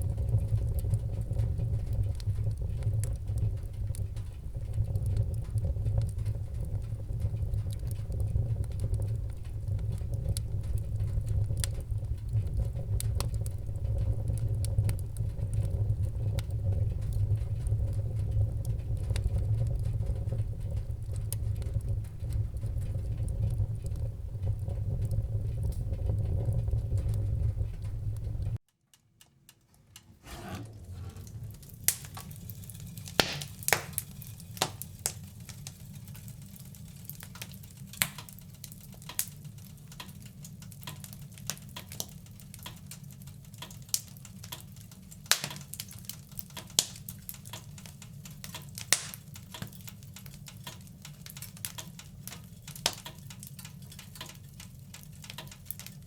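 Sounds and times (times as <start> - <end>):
low rumble: 0.0 - 28.6
wood fire crackling: 0.0 - 56.0.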